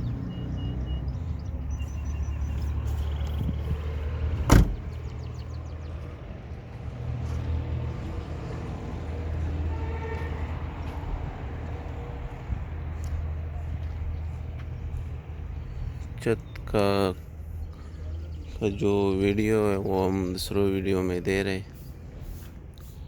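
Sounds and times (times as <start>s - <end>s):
car engine idling: 4.3s - 5.8s.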